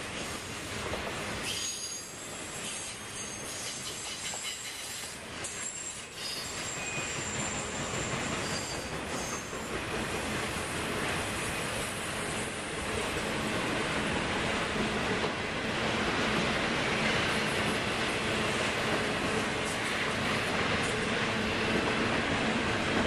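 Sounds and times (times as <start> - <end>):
train wheels on rails: 0.0 - 23.0
high wheel squeals: 1.5 - 9.7.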